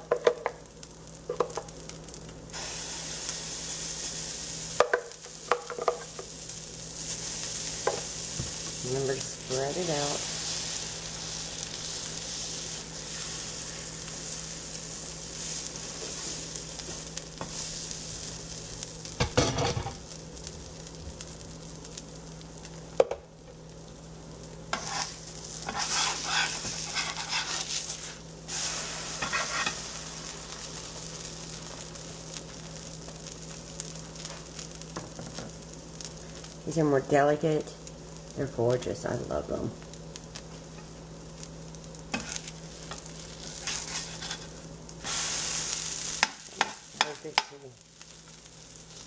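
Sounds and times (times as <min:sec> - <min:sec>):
batter sizzling in a skillet: 0:00.0 - 0:49.0
scraping in a skillet: 0:05.4 - 0:18.5, 0:24.7 - 0:31.9, 0:42.1 - 0:49.0.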